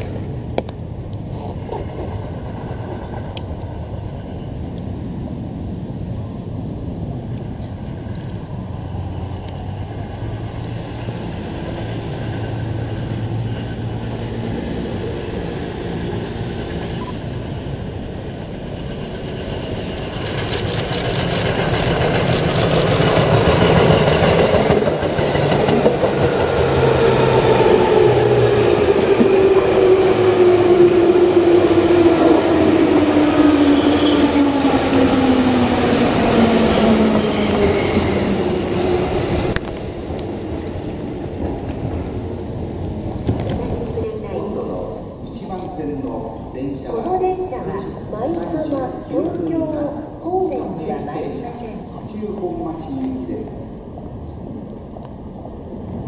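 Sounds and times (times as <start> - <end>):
train wheels clattering over rail joints: 18.8 - 27.5
high-pitched wheel squeals: 33.2 - 35.2, 36.5 - 38.5.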